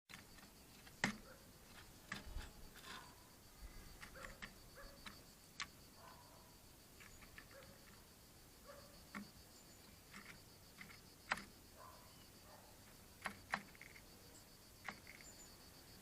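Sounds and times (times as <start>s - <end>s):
woodpecker tapping: 0.1s - 3.1s, 3.9s - 5.8s, 8.7s - 12.0s, 12.8s - 14.1s, 14.8s - 15.5s.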